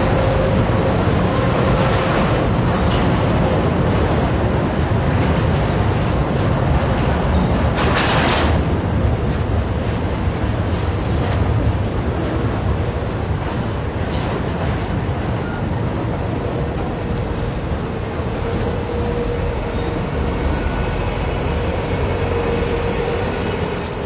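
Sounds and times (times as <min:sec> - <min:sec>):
freight train wheels rumbling: 0:00.0 - 0:24.0
wheels squealing: 0:15.1 - 0:24.0.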